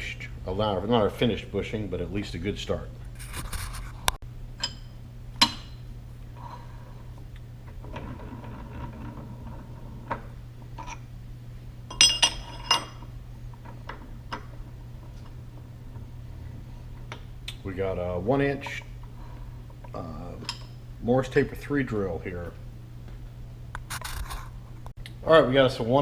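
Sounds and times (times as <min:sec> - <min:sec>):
low hum: 0:00.0 - 0:25.2
metal tools clinking: 0:11.9 - 0:13.1.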